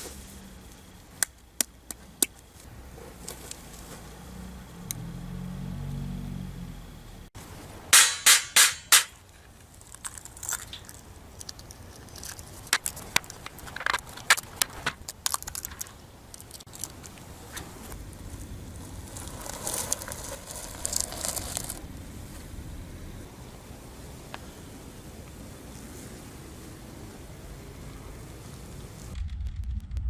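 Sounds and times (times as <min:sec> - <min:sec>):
loud sharp knocks: 0:07.9 - 0:09.2
light clicks and cracks: 0:09.3 - 0:18.0.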